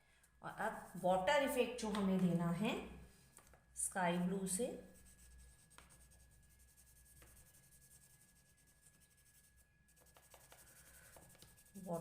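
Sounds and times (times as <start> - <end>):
pastel scratching on paper: 4.8 - 12.0.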